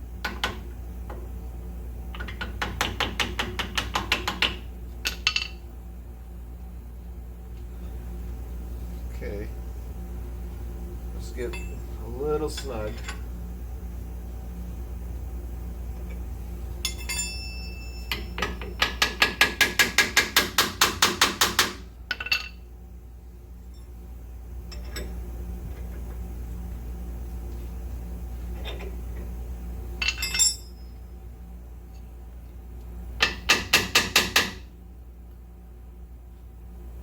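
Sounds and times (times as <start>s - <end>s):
steel parts clinking: 30.0s - 30.8s.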